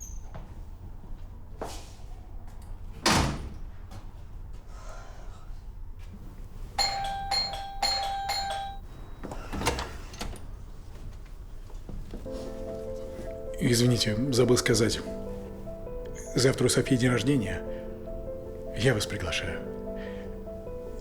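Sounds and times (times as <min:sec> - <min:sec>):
door thudding shut: 0:03.0 - 0:03.6
electronic doorbell chimes: 0:06.8 - 0:09.4
door opening: 0:06.8 - 0:12.3.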